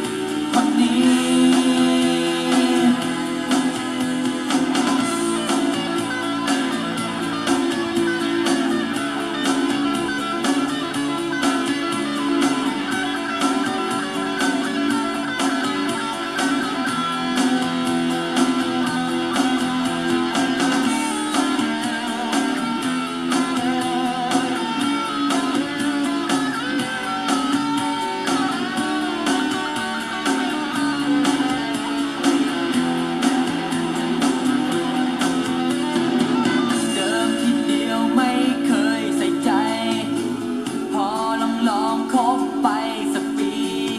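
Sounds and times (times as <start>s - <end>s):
guitar music with steady beat: 0.0s - 43.9s.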